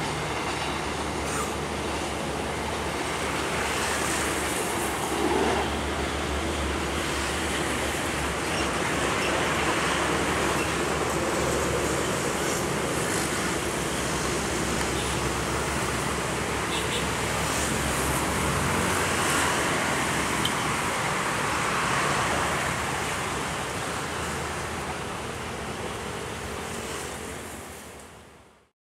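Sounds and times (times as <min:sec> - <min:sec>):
diesel train engine drone: 0:00.0 - 0:28.7
train rolling hiss: 0:00.1 - 0:16.0.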